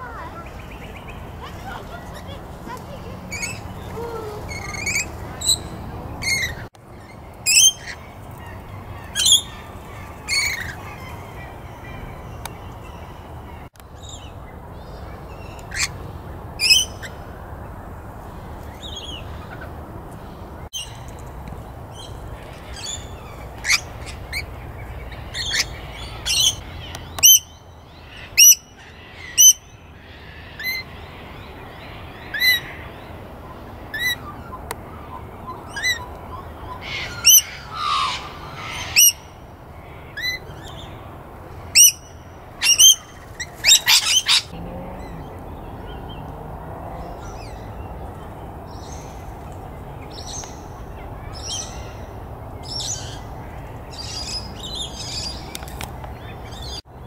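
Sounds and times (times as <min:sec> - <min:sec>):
birds calling sharply: 0:00.0 - 0:17.4, 0:18.2 - 0:56.9
bird harsh screech: 0:36.8 - 0:39.3.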